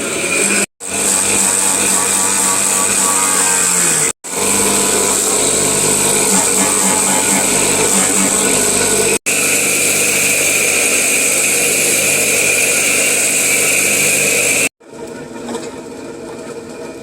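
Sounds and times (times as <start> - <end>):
machine running with high whine: 0.0 - 14.7
quieter machine hum: 4.3 - 14.7.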